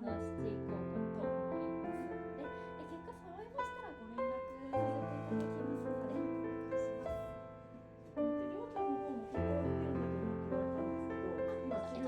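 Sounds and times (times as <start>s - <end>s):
gentle piano piece: 0.0s - 12.0s.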